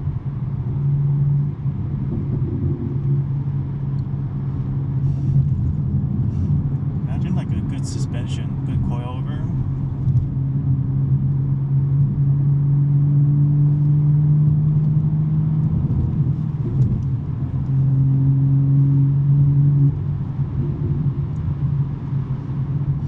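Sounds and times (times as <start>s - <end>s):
car exhaust droning: 0.0s - 12.6s.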